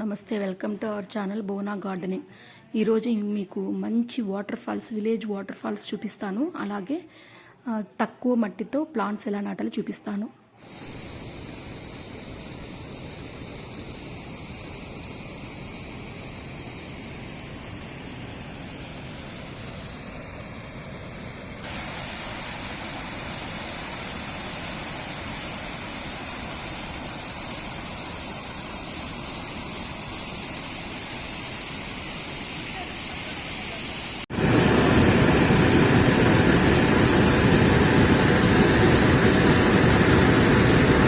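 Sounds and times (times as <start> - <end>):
waterfall rushing: 21.6 - 41.0.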